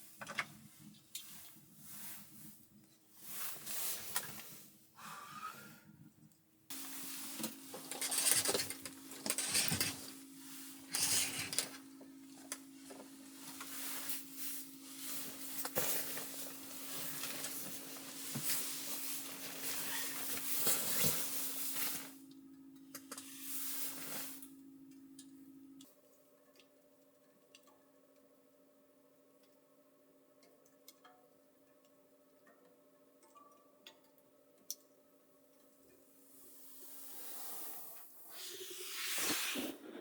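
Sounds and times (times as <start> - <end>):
rustling and scraping: 6.7 - 11.8, 12.9 - 22.1.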